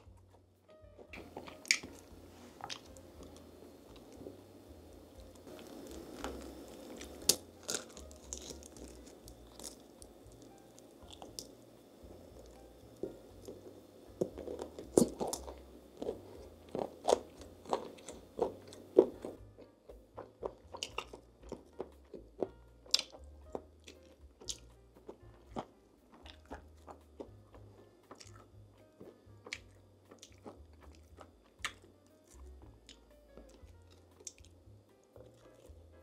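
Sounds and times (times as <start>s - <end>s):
crunching and chewing food: 0.0s - 36.0s.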